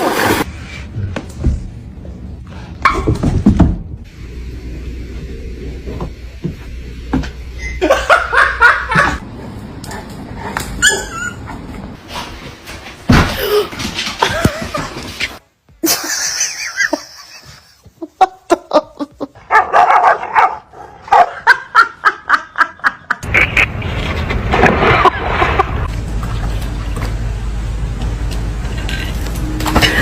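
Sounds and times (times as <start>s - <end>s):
steady low hum: 3.8s - 10.8s
people laughing: 7.6s - 9.2s, 15.8s - 19.4s, 21.3s - 23.6s, 24.8s - 25.9s
dog barking and yelping: 10.8s - 11.5s, 19.5s - 21.5s.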